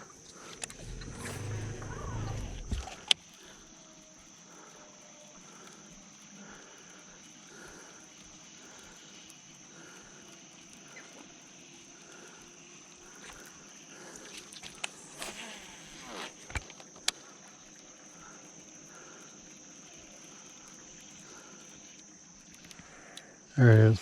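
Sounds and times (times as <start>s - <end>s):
high-pitched insect drone: 0.0s - 24.0s
soft low repeated animal call: 0.4s - 14.2s.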